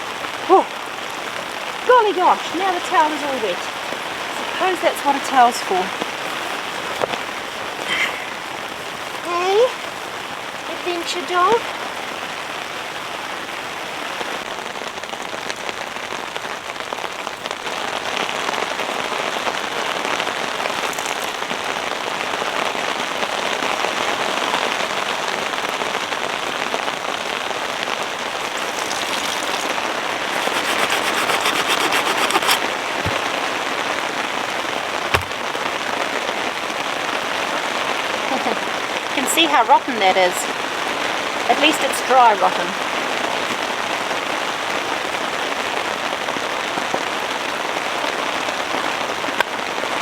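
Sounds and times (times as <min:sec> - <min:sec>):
heavy rain on fabric: 0:00.0 - 0:50.0
sharp knocks: 0:35.1 - 0:35.4.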